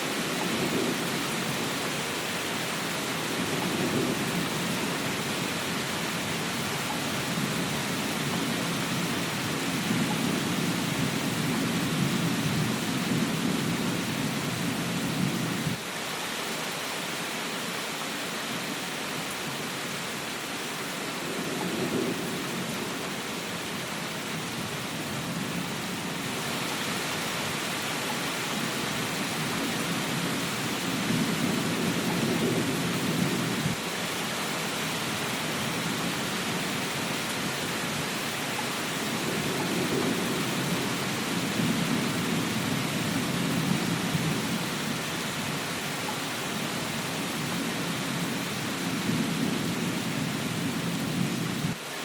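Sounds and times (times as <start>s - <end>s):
rain hiss: 0.0s - 52.0s
thunder rumbling: 3.3s - 15.8s, 21.2s - 26.5s, 28.5s - 33.8s, 39.0s - 45.5s.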